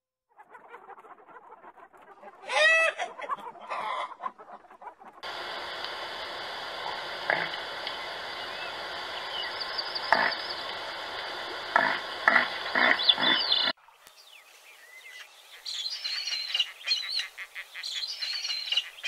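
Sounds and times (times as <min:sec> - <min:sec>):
steady outdoor hiss: 0:05.2 - 0:19.0
bird chirps: 0:12.7 - 0:19.0.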